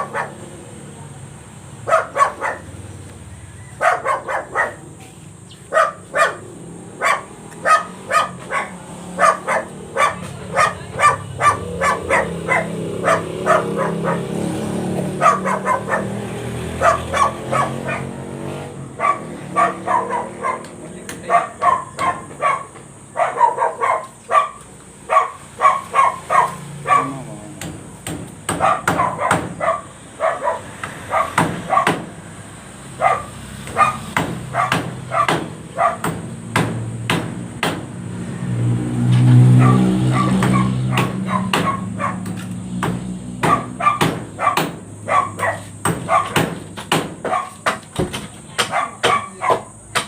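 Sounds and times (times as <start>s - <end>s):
dog barking: 0.0s - 1.2s, 1.8s - 2.8s, 3.8s - 5.0s, 5.7s - 14.5s, 15.1s - 27.3s, 28.5s - 32.1s, 32.9s - 36.2s, 39.4s - 42.4s, 43.4s - 46.6s, 47.2s - 47.8s, 48.6s - 49.8s.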